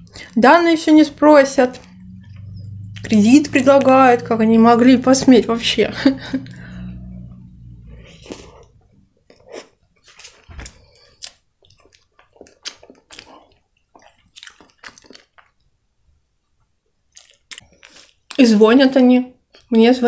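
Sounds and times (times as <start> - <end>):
wet mouth clicks and smacks: 10.1 - 15.6, 17.1 - 18.4.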